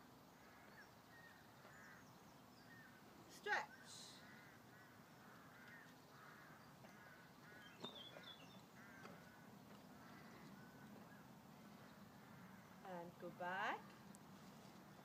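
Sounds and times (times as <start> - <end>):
distant birds calling: 0.0 - 15.0
higher bird chirps: 3.6 - 12.8.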